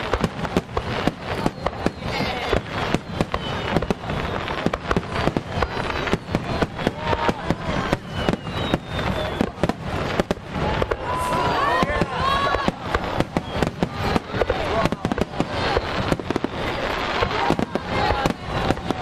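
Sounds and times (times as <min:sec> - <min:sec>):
fireworks bursting: 0:00.0 - 0:19.0
whistling firework shells: 0:00.0 - 0:19.0.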